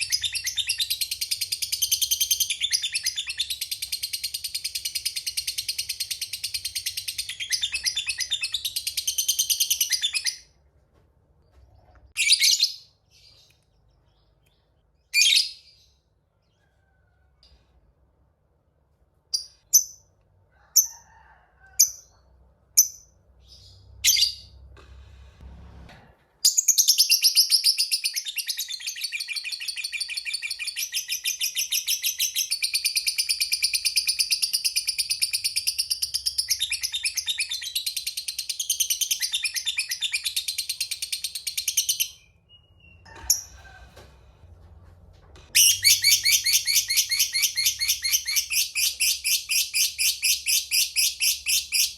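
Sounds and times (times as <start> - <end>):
lovebird chirps: 45.5 - 51.9.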